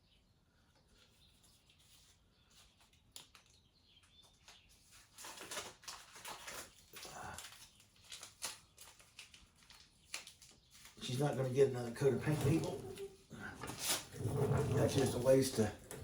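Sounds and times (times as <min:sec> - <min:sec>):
handling rustling and scraping: 0:12.0 - 0:16.0.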